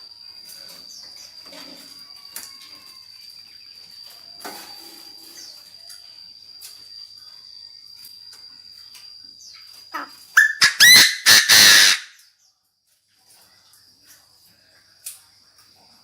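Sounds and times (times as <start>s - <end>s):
faint steady high tone: 0.0s - 10.6s
bird harsh grating call: 9.9s - 12.2s.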